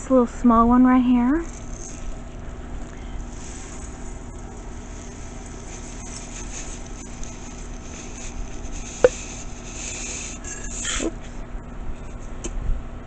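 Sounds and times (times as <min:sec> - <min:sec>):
faint steady hum: 0:00.0 - 0:13.0
high hiss: 0:01.4 - 0:11.3.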